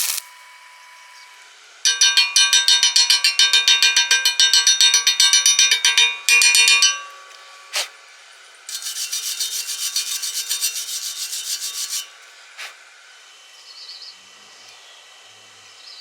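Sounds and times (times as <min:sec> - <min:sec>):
scraping on metal: 0:07.7 - 0:08.0, 0:08.7 - 0:12.8.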